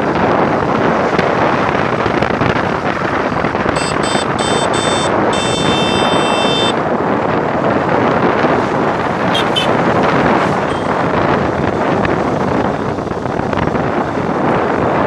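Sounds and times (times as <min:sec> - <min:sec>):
wind rush over microphone: 0:00.0 - 0:15.0
vehicle horn honking: 0:03.8 - 0:06.8, 0:09.3 - 0:09.8, 0:10.6 - 0:11.0.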